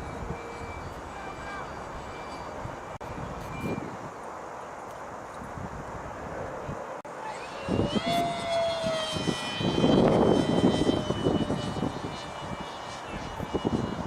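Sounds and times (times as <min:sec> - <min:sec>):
model aircraft motor whining: 0:00.0 - 0:04.0, 0:07.1 - 0:14.0
wind buffeting microphone: 0:00.0 - 0:04.3, 0:05.1 - 0:14.0.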